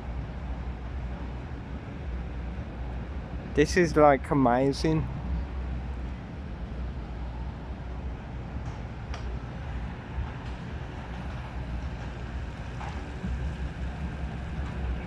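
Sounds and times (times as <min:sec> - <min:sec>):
wind rumbling on microphone: 0:04.9 - 0:15.0.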